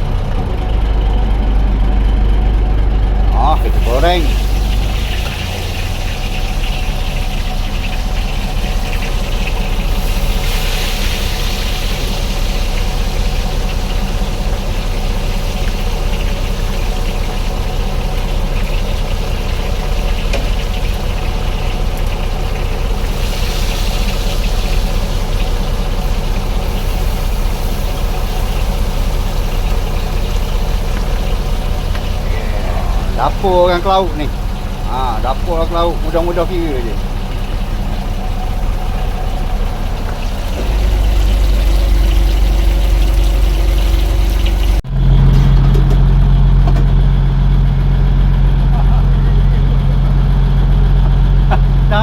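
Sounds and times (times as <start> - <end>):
boat engine idling: 0.0 - 52.0
hiss: 8.8 - 13.7, 23.0 - 25.5.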